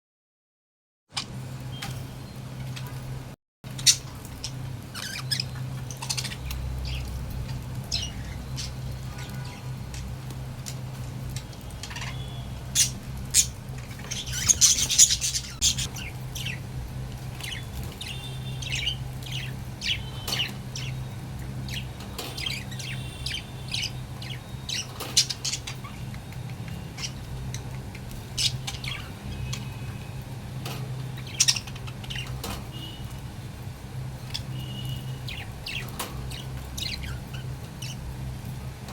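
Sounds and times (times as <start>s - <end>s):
budgerigars chirping and squawking: 3.7s - 10.2s, 11.8s - 16.7s, 17.3s - 26.1s, 26.9s - 29.7s, 31.2s - 33.0s, 34.3s - 38.0s.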